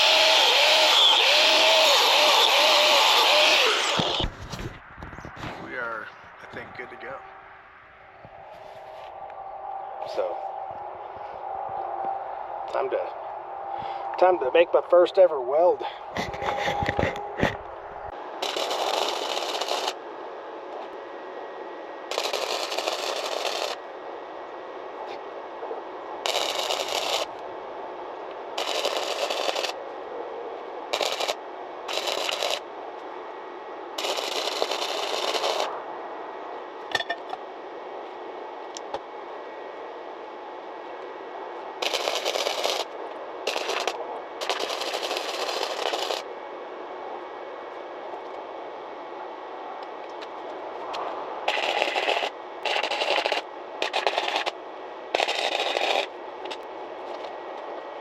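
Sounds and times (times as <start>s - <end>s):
welder arc crackling: 0.0s - 4.7s, 18.4s - 20.0s, 22.1s - 23.8s, 26.2s - 27.4s, 28.6s - 29.8s, 30.9s - 32.7s, 34.0s - 35.8s, 41.8s - 46.3s, 51.4s - 56.6s.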